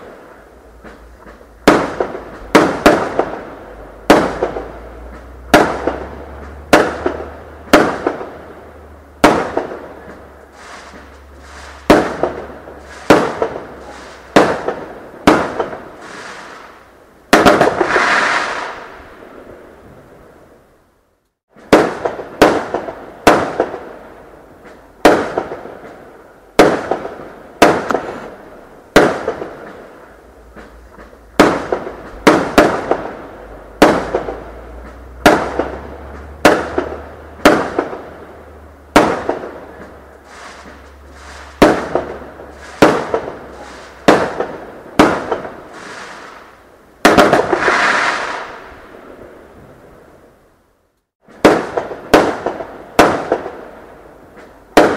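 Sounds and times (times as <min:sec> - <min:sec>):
fireworks bangs: 0:00.0 - 0:20.4, 0:21.5 - 0:50.1, 0:51.2 - 0:54.9
hissing rush: 0:10.2 - 0:14.5, 0:15.9 - 0:16.9, 0:17.7 - 0:19.1, 0:39.6 - 0:44.2, 0:45.6 - 0:46.6, 0:47.4 - 0:48.9.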